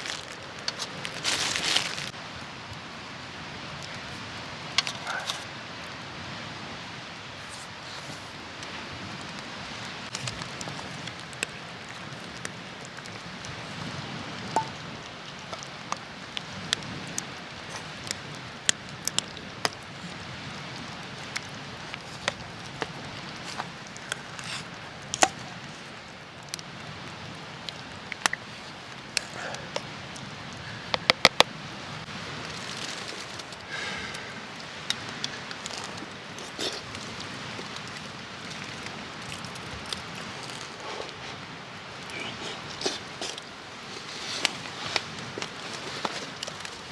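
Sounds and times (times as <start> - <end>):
campfire crackling: 0.0 - 46.9
fire pops and snaps: 30.9 - 33.7.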